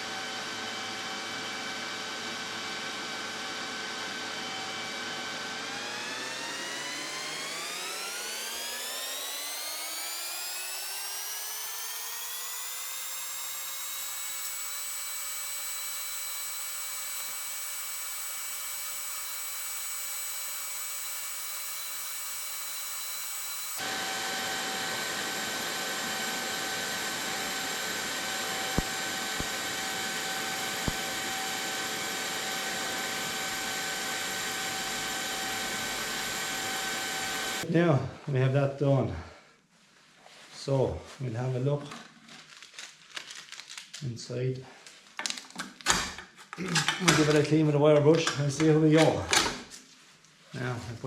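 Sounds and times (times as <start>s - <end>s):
welding electrical whine: 5.8s - 37.6s
hissing welding sound: 11.0s - 23.8s, 27.4s - 31.7s.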